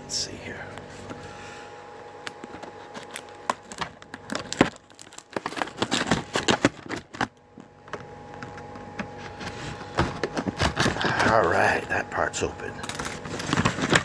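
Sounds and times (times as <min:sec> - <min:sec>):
cardboard tearing and crinkling: 0:02.2 - 0:12.0, 0:12.8 - 0:14.0.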